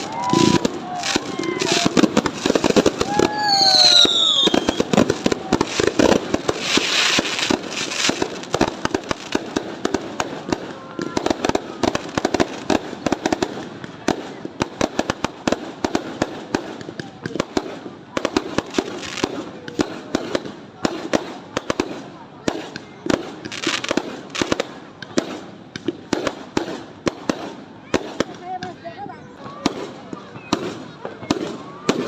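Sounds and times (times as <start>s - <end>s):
falling firework whistle: 0.0s - 5.0s
fireworks popping and crackling: 0.0s - 32.0s.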